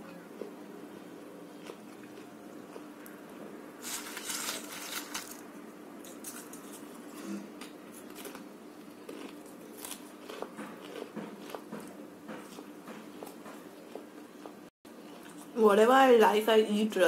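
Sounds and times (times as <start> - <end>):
person crunching snack: 3.8 - 5.4, 9.0 - 11.7.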